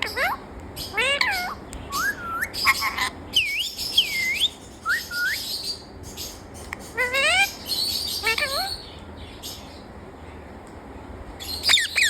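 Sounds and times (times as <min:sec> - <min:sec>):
parrot whistling: 0:01.0 - 0:05.5, 0:11.7 - 0:12.0.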